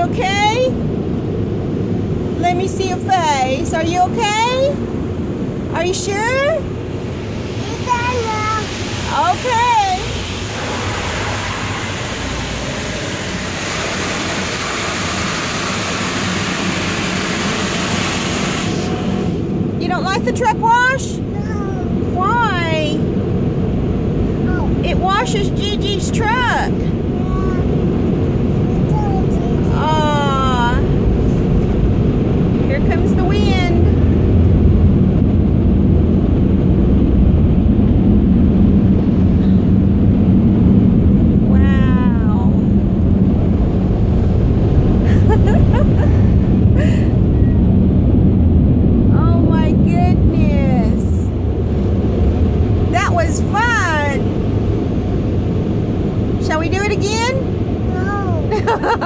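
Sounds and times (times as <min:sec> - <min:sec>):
air-dryer blowers blasting air: 0:03.8 - 0:19.8
water spraying over truck: 0:04.3 - 0:19.6.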